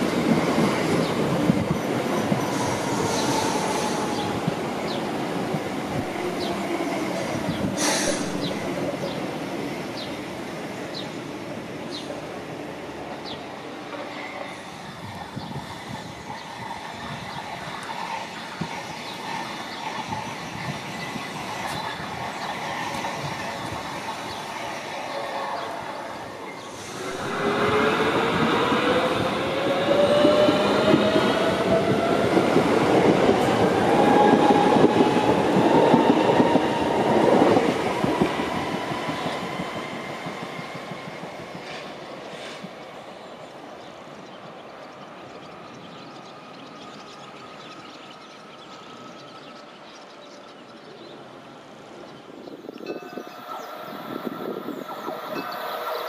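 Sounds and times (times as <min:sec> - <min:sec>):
train wheels rumbling on rails: 0:00.0 - 0:43.1.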